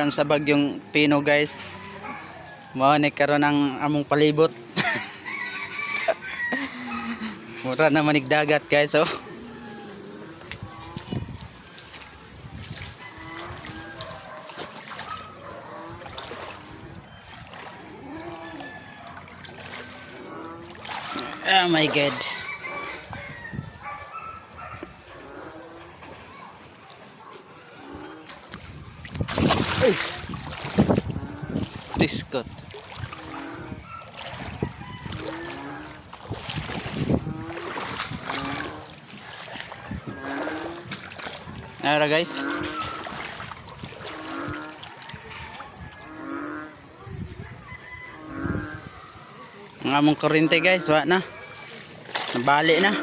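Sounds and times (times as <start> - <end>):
floodwater trickling and splashing: 0.0 - 53.0
typhoon wind: 27.9 - 41.9.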